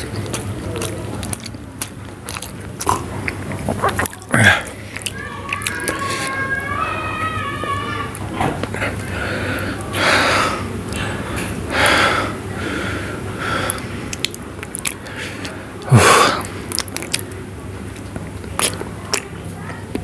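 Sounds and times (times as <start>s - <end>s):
wet chewing clicks: 0.0s - 6.4s, 13.4s - 20.0s
person breathing hard: 8.7s - 14.1s, 15.0s - 16.6s.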